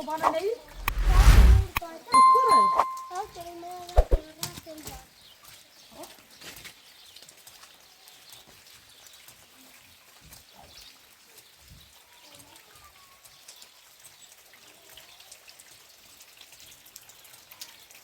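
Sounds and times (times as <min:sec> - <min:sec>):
faint rain with drop clicks: 0:04.3 - 0:18.0.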